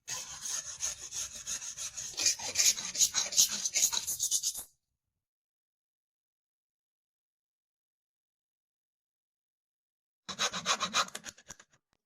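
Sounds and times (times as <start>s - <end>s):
hand tool rubbing on wood: 0.1s - 4.6s.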